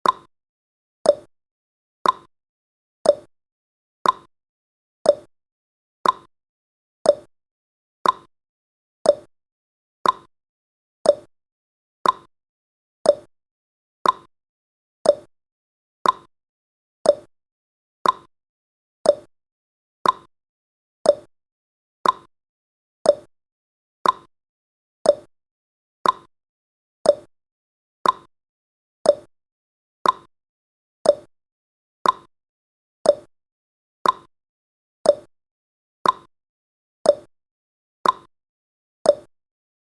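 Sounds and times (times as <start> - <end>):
clock ticking: 2.0 - 2.3, 4.0 - 4.3, 6.0 - 6.3, 8.0 - 8.3, 10.0 - 10.3, 12.0 - 12.3, 14.0 - 14.3, 15.1 - 15.3, 16.0 - 16.3, 17.1 - 17.3, 18.0 - 18.3, 19.1 - 19.3, 20.0 - 20.3, 21.1 - 21.3, 22.0 - 22.3, 24.0 - 24.3, 26.0 - 26.3, 28.0 - 28.3, 29.1 - 29.3, 30.0 - 30.3, 31.1 - 31.3, 32.0 - 32.3, 33.1 - 33.3, 34.0 - 34.3, 35.1 - 35.3, 36.0 - 36.3, 38.0 - 38.3, 39.1 - 39.3.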